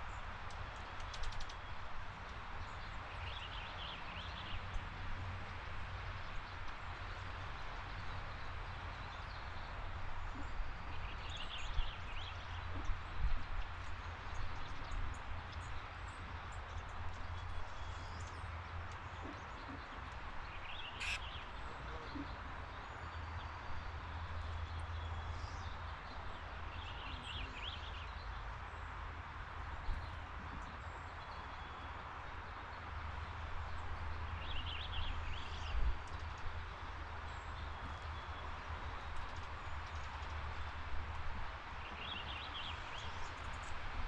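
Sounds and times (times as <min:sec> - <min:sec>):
short bird chirps: 0:21.0 - 0:21.3.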